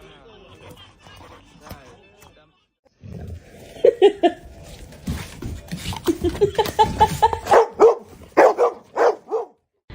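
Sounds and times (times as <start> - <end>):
dog barking: 7.4 - 9.6.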